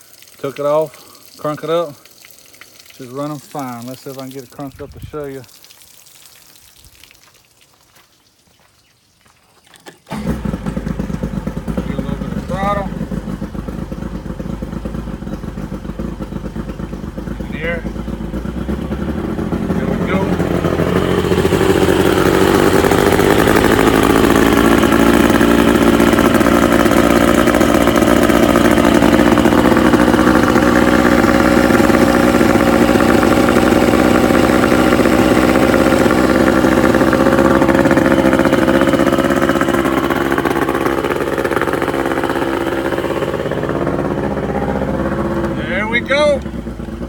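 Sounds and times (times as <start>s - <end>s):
outboard motor running: 3.0s - 5.2s, 9.8s - 47.0s.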